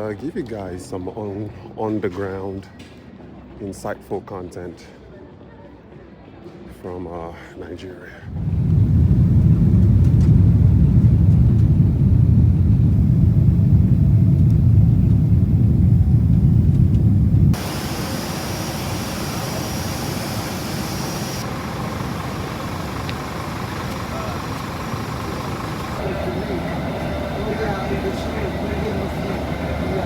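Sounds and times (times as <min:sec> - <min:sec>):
faint high whine: 0:08.3 - 0:30.0
jet airliner cabin rumble: 0:08.3 - 0:30.0
even hiss: 0:17.6 - 0:26.1.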